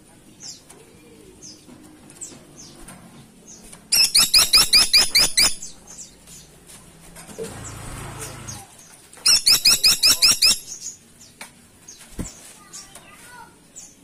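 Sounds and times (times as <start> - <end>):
faint high bird chirps: 3.5 - 6.5, 9.2 - 11.0
woodpecker calling sharp notes: 4.0 - 5.7, 9.3 - 10.8.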